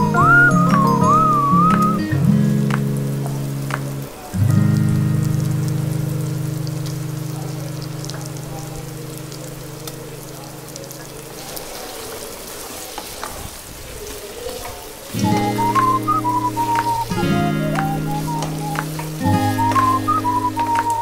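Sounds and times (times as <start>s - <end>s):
background music: 0.0s - 3.7s, 15.2s - 21.0s
food sizzling in a pan: 0.0s - 21.0s.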